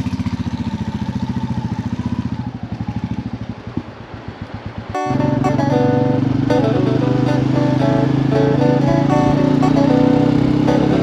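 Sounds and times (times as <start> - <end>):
background music: 5.0 - 11.0.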